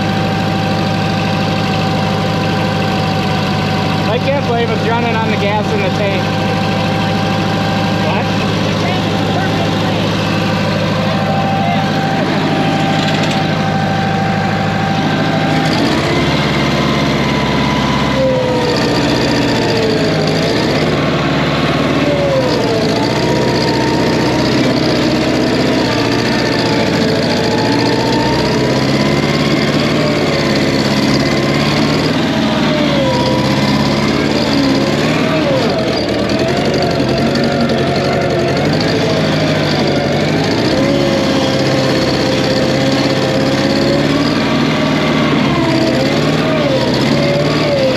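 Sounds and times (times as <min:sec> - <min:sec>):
air-cooled engine running: 0:00.0 - 0:47.9
wavering high whine: 0:07.0 - 0:19.5.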